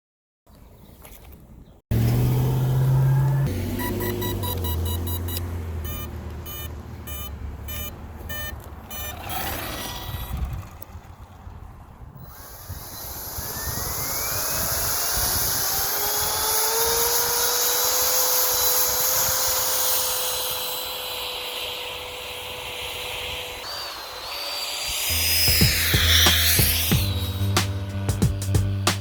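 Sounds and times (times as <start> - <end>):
electric ducted fan whine: 12.2 - 29.0.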